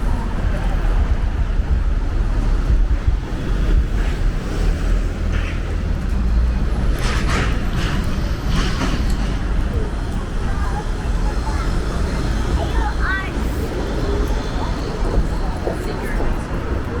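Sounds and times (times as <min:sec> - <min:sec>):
wind on microphone: 0:00.0 - 0:12.7
traffic rumble: 0:00.0 - 0:17.0.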